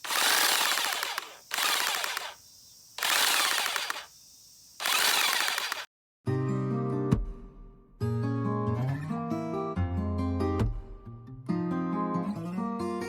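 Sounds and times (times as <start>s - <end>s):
electric hedge trimmer rattling: 0.0s - 2.4s, 3.0s - 4.1s, 4.8s - 5.9s.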